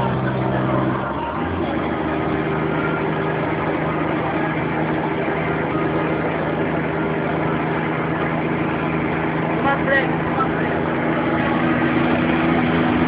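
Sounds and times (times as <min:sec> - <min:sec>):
truck diesel engine running: 0:00.0 - 0:13.0.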